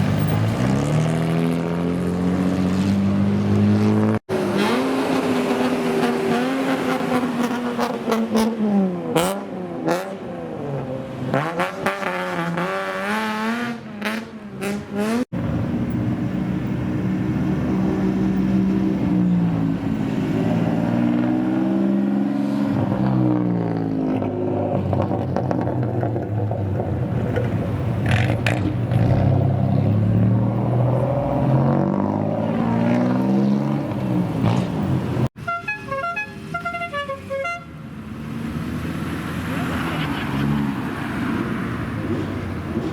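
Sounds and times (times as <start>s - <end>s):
car engines revving loudly: 0.0s - 35.4s, 37.8s - 42.9s.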